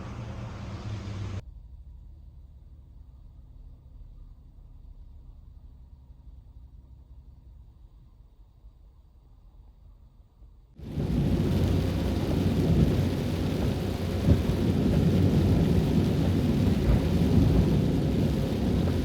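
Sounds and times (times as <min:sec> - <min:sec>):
heavy rain roaring: 0:00.0 - 0:01.4, 0:10.8 - 0:19.0.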